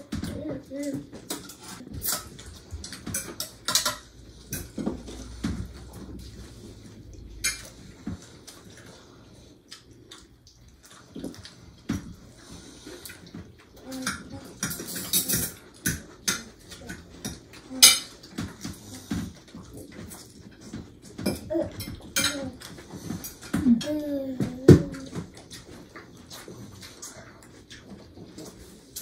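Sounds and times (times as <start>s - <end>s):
cutlery clinking on plates: 1.0s - 6.0s, 13.9s - 19.3s, 20.0s - 23.9s.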